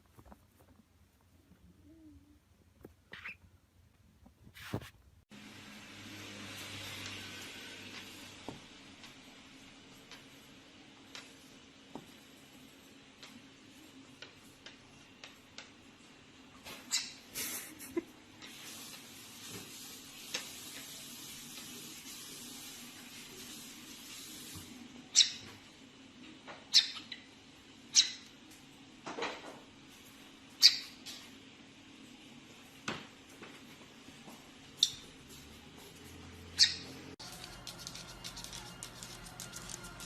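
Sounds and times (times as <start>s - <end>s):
parrot calling: 3.1s - 3.4s, 26.7s - 27.3s, 36.6s - 37.0s.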